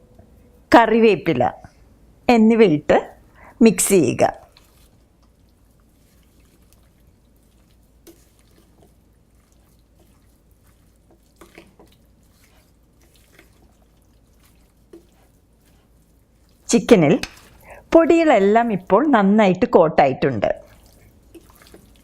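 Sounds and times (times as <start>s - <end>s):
wet squelches of mixing chicken: 3.2s - 19.2s, 20.5s - 22.0s.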